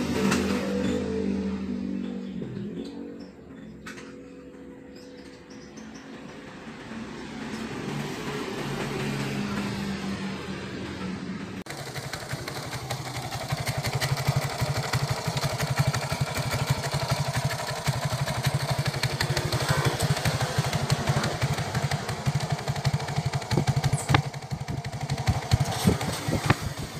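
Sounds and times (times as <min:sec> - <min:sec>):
motorcycle engine idling: 0:00.0 - 0:26.9.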